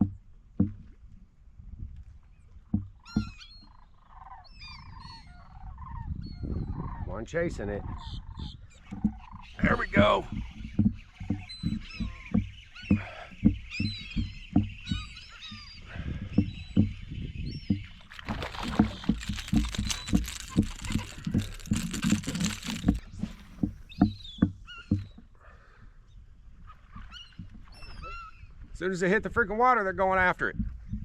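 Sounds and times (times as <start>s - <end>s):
water splashing: 18.0s - 23.0s.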